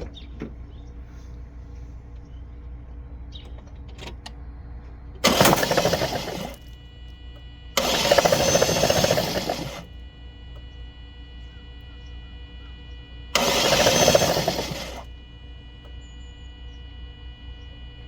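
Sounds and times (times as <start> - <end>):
starter cranking engine: 5.2 - 6.7, 7.8 - 9.9, 13.4 - 15.1.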